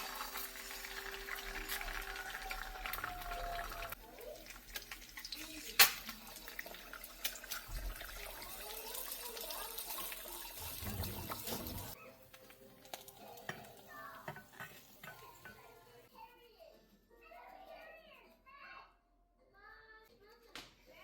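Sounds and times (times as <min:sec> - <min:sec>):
water running from a tap: 0:00.0 - 0:12.0
kitchen clicks and knocks: 0:10.6 - 0:15.7.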